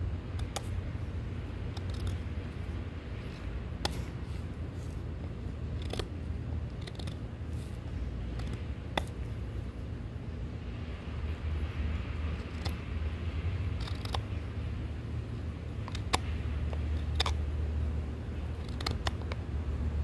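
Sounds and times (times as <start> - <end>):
steady low rumble: 0.0 - 20.0
knife clicking: 1.7 - 2.2, 5.8 - 6.1.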